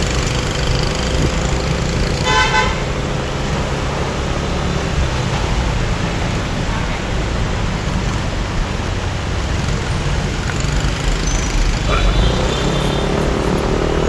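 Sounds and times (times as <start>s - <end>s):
vehicle horn honking: 2.2s - 3.0s, 11.9s - 13.6s.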